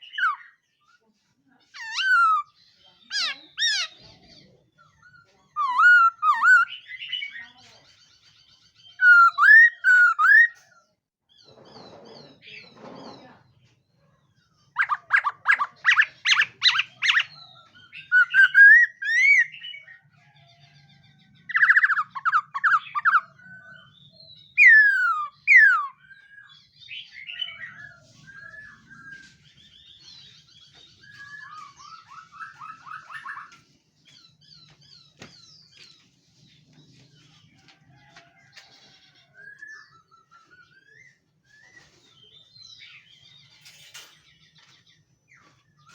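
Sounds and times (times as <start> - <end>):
bird chattering: 3.1 - 4.2, 14.8 - 19.7
bird singing whistled phrases: 9.0 - 10.6, 18.0 - 19.6, 24.6 - 29.3.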